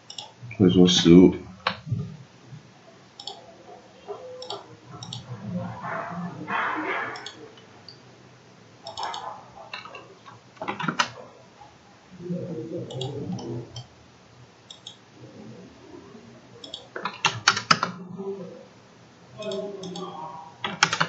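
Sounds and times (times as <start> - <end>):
computer mouse and keyboard clicks: 0.0 - 0.4, 1.6 - 2.1, 3.2 - 3.4, 4.1 - 8.0, 8.8 - 11.2, 12.8 - 13.9, 14.6 - 15.0, 16.6 - 18.0, 19.4 - 21.0
soft low murmur: 0.0 - 21.0.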